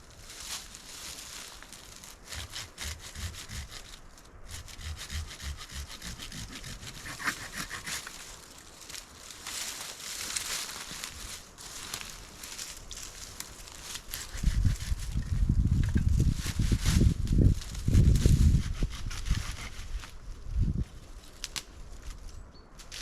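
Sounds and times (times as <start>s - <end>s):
hand saw cutting wood: 2.3s - 8.2s, 14.1s - 15.0s, 18.5s - 19.9s.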